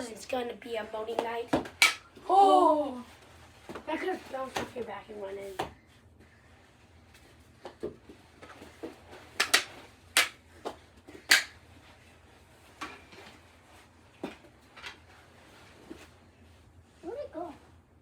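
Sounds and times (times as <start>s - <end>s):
hockey sticks and ball clacking: 8.6s - 11.6s.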